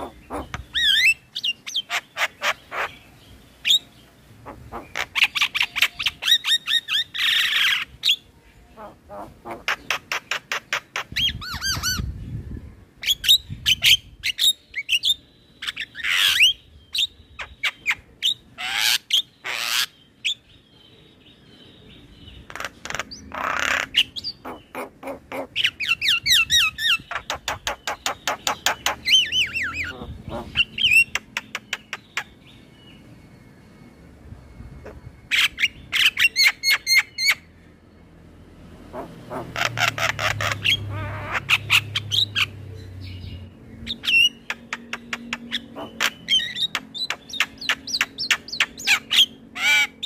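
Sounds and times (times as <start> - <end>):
harsh bird squawks: 0.0 - 3.0, 22.5 - 32.3, 38.9 - 42.5, 45.5 - 50.0.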